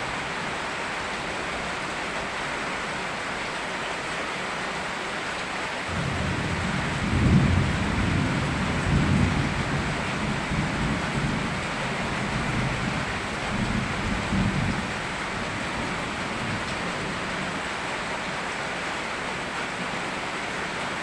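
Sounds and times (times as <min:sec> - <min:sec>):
steady rain: 0:00.0 - 0:21.0
thunder rumbling: 0:05.9 - 0:17.3.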